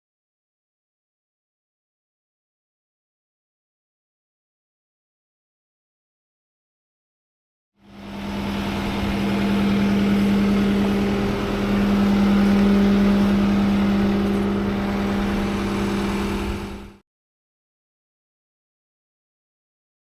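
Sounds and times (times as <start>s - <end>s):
engine humming steadily: 7.8s - 17.0s.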